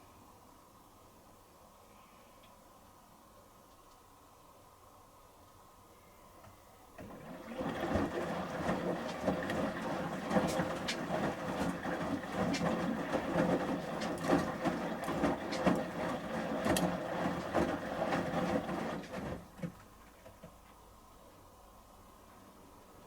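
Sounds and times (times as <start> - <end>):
washing machine drum tumbling: 7.0 - 20.6
wet load clacking and knocking: 7.0 - 20.8.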